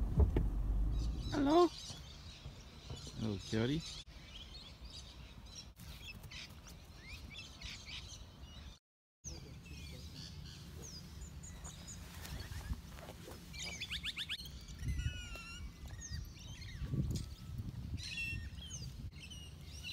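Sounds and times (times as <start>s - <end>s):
low wind rumble: 0.0s - 3.6s
birds chirping and calling: 0.8s - 19.9s.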